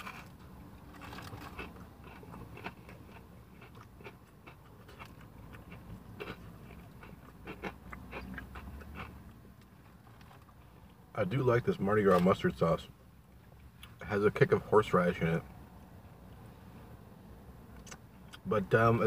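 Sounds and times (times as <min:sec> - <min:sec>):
chewing crunchy food: 0:00.0 - 0:10.6
low steady hum: 0:00.0 - 0:19.0.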